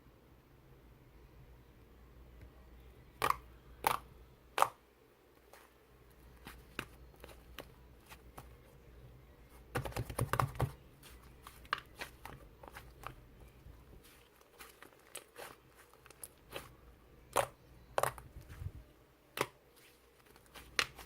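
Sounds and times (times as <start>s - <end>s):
slime squishing with popping clicks: 17.3s - 18.2s.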